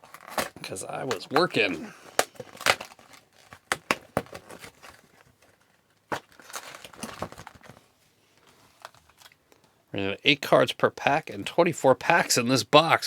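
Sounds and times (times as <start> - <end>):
plastic wrapping crinkling and tearing: 0.0 - 7.9.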